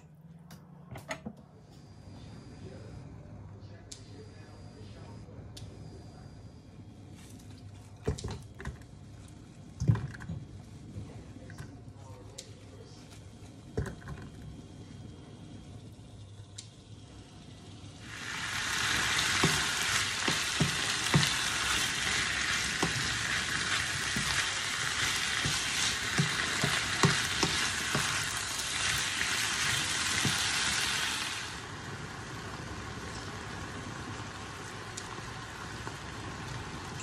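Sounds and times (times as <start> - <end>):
food sizzling in a wok: 17.4 - 37.0
wooden spoon scraping a pan: 19.0 - 31.0.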